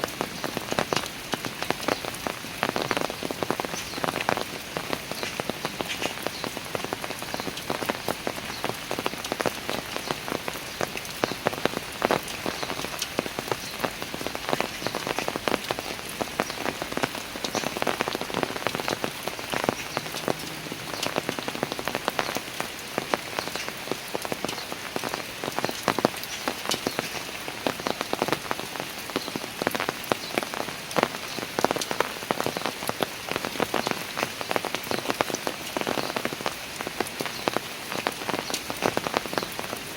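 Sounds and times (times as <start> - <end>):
rain on stone stairs: 0.0 - 39.9.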